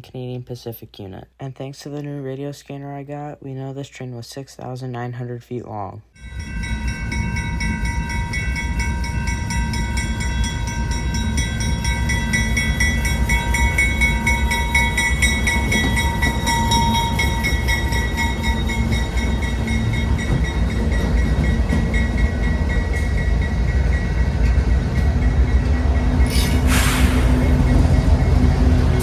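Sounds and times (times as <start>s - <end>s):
high-pitched ringing tones: 6.2s - 24.6s
freight train rumbling: 6.2s - 29.0s
wheels clacking over rail: 13.3s - 29.0s.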